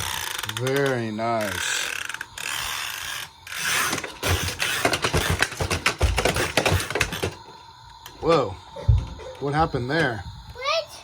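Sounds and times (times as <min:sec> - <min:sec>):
vacuum cleaner clattering: 0:03.6 - 0:07.4.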